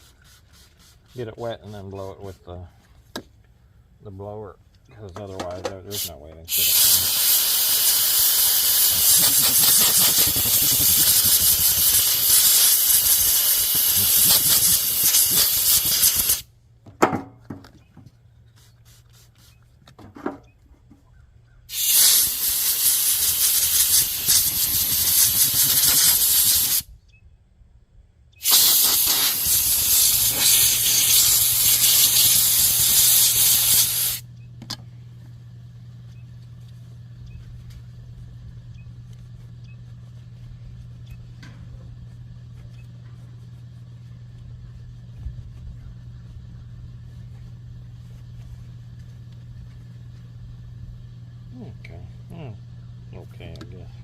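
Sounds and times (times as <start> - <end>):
low steady hum: 0.0 - 7.2, 16.2 - 21.7, 26.8 - 28.4, 29.6 - 54.0
air blow gun hissing: 5.9 - 16.5, 21.7 - 26.9, 28.4 - 34.2.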